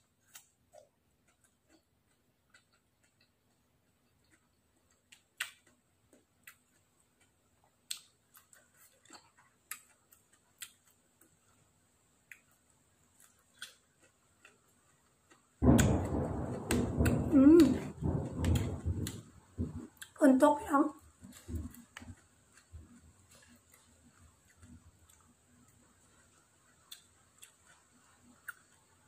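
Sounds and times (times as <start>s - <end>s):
soft chewing sounds: 0.0s - 29.0s
sudden loud sound: 15.6s - 19.9s.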